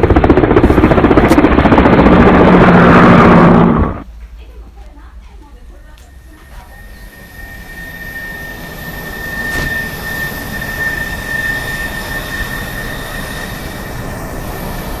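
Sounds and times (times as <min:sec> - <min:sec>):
machine whining and hissing: 0:06.1 - 0:15.0.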